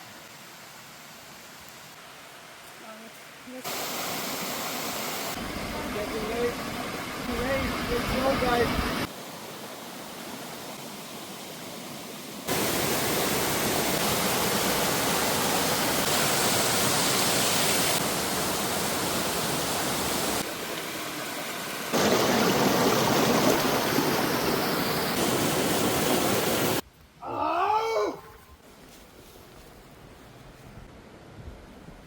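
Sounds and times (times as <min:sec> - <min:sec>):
waterfall rushing and splashing: 0:03.3 - 0:26.8.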